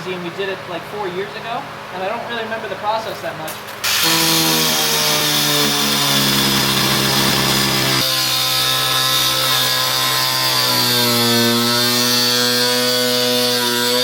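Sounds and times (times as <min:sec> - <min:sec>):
angle grinder cutting metal: 0:03.8 - 0:14.0.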